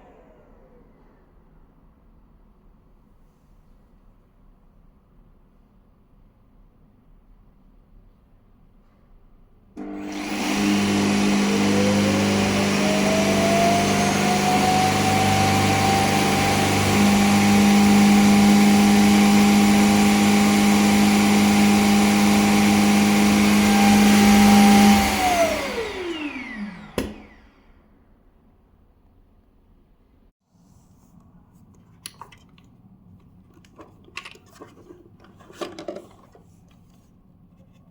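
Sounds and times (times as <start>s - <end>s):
suction motor whine: 9.8s - 27.7s.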